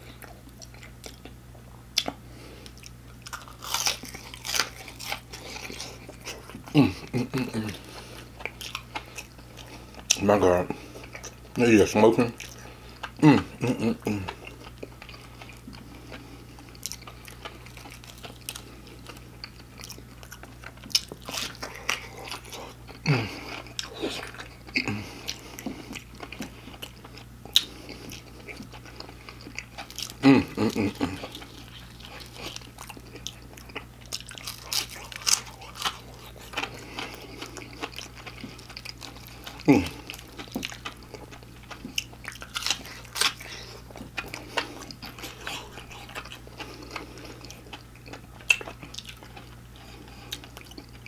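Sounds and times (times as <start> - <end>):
person chewing crunchy food: 0.0 - 51.0
steady low hum: 0.0 - 51.0
low voice sounds: 39.7 - 40.0.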